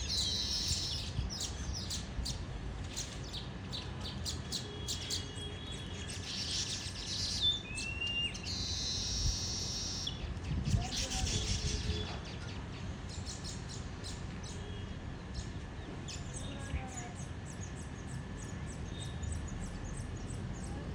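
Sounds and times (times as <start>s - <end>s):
small songbirds chirping: 0.0s - 20.9s
rising bird whistle: 7.7s - 10.2s.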